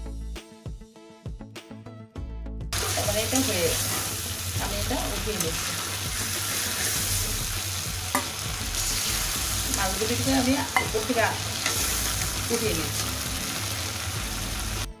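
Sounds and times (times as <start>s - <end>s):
fish sizzling in a pan: 2.8s - 14.9s
metal spatula scraping pan: 5.5s - 7.1s.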